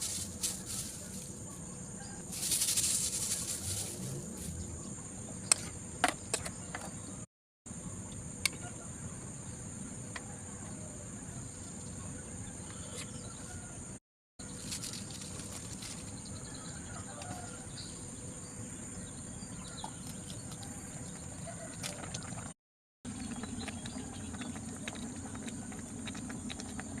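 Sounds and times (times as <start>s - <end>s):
insects trilling: 0.0s - 6.0s, 14.4s - 22.2s.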